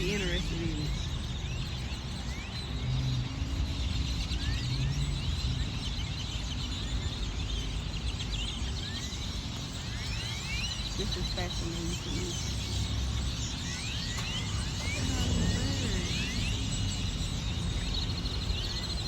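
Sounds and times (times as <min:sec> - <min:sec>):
flock of birds chirping: 0:00.0 - 0:19.0
low traffic rumble: 0:00.0 - 0:19.0.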